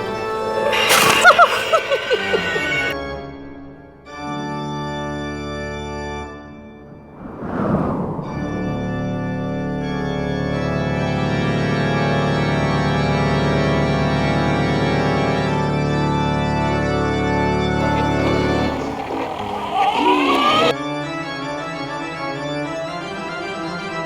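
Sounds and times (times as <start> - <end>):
organ chords: 0.0 - 3.0, 17.8 - 20.8.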